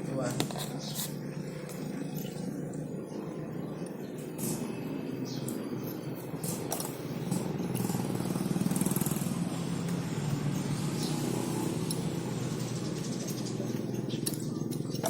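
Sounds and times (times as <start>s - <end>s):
motorcycle engine running: 6.6s - 15.0s.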